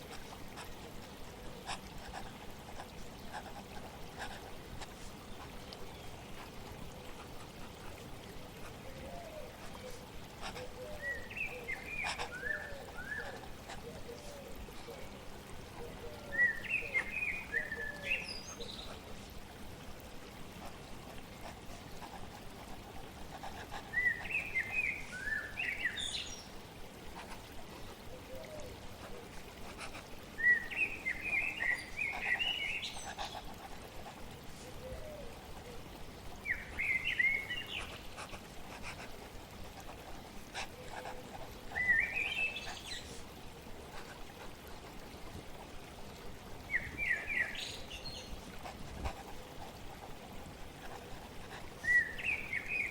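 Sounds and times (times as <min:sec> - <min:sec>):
flowing water rushing: 0:00.0 - 0:52.9.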